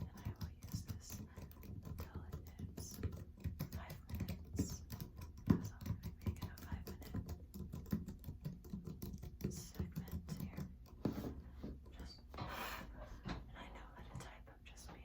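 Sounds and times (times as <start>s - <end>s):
typing on computer keyboard: 0.0s - 11.0s.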